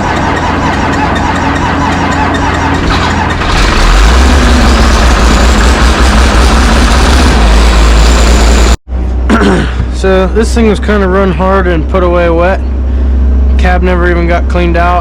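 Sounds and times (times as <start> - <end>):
diesel engine running: 0.0 - 15.0
whine rising in pitch: 3.7 - 9.2.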